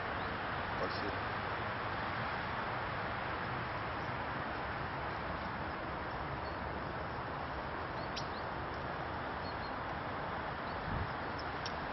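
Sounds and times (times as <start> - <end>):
small birds chirping: 3.3 - 11.9.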